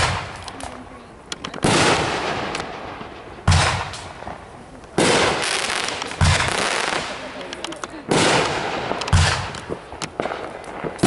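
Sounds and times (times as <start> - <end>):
firework bangs: 0.0 - 11.0.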